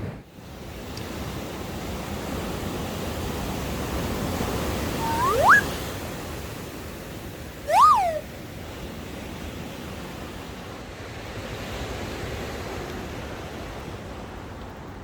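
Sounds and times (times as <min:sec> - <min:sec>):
whistle-like tone: 0:05.0 - 0:05.7, 0:07.7 - 0:08.2.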